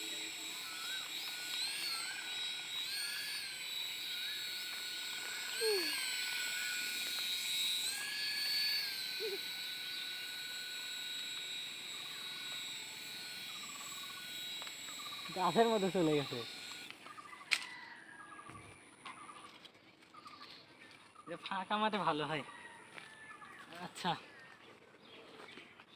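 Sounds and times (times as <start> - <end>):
toy helicopter motor whining: 0.0 - 19.6.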